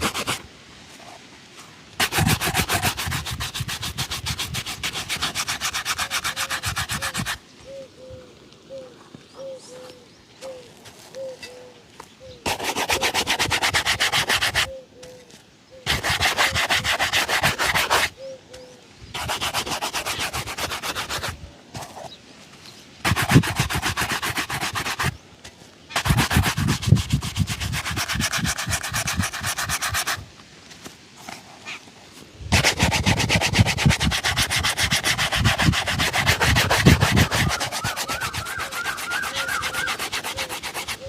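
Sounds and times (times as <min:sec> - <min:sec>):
leather shoe being buffed: 0:00.0 - 0:00.4, 0:02.0 - 0:07.4, 0:12.5 - 0:14.7, 0:15.9 - 0:18.2, 0:19.2 - 0:22.1, 0:23.0 - 0:25.2, 0:25.9 - 0:30.3, 0:32.5 - 0:41.0.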